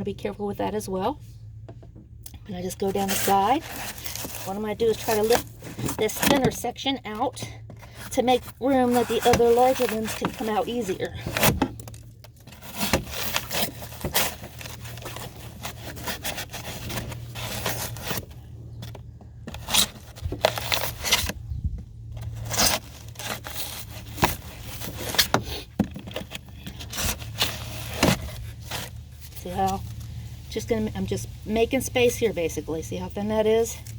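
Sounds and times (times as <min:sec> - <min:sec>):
foam crunching and tearing: 0:02.8 - 0:21.4, 0:22.2 - 0:29.9.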